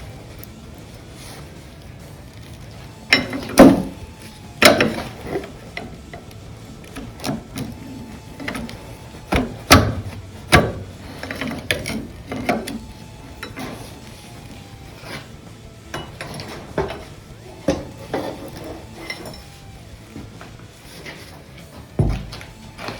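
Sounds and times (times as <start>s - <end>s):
pry bar clanking on metal: 3.0s - 19.7s.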